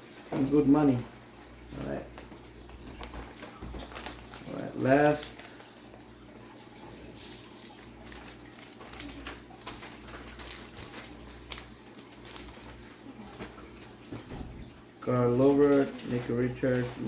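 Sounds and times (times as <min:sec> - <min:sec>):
card pack wrapper crinkling: 0:02.9 - 0:06.1, 0:07.1 - 0:14.0.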